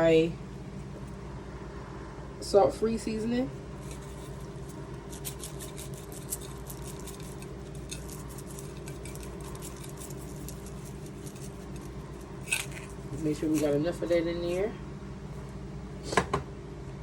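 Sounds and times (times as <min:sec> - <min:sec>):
low hum: 0:00.0 - 0:16.0
seasoning shaker being shaken: 0:03.8 - 0:14.3.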